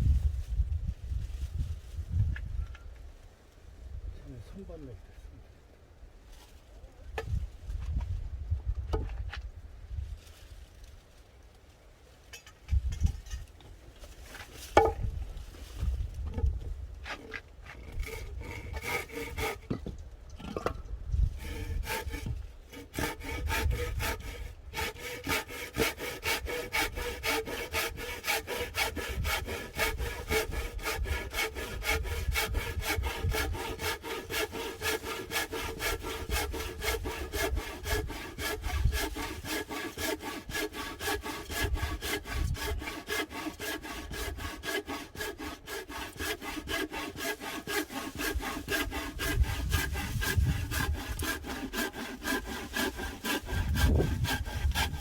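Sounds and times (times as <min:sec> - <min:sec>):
hand saw cutting log: 0:16.3 - 0:55.0.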